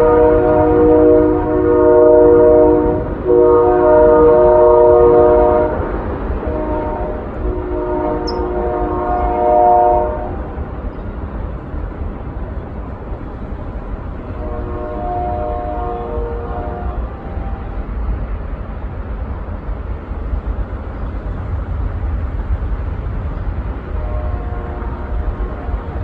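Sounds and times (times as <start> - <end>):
train horn blasts: 0.0 - 10.9, 13.6 - 18.2, 23.8 - 26.0.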